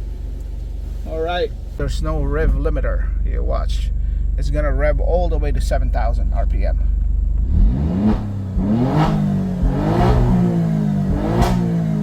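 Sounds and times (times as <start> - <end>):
car engine revving: 7.2 - 12.0.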